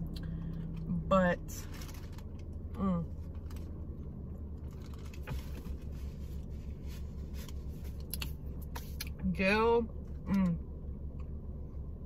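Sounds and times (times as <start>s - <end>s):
steady low hum: 0.0s - 12.0s
person chewing bread: 4.6s - 9.1s.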